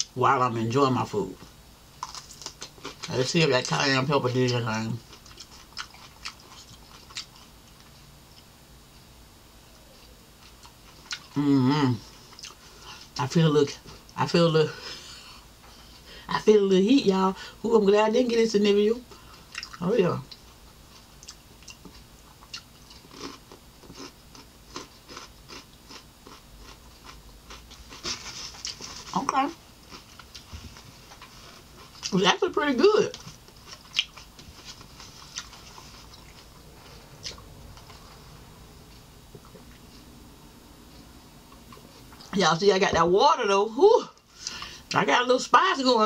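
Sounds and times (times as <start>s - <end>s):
quiet chewing: 1.4s - 3.8s, 5.0s - 11.4s, 12.0s - 13.2s, 19.1s - 32.2s, 33.1s - 40.2s, 40.8s - 42.4s
crisp cucumber crunches: 2.0s - 7.9s, 21.2s - 30.5s.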